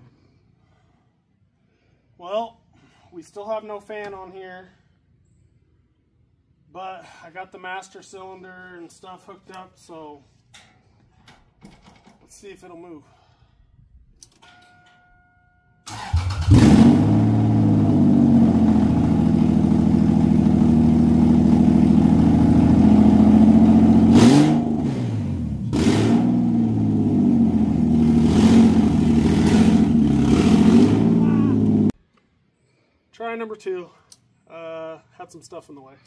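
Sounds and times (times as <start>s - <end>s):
car engine cranking and running: 15.9s - 31.9s.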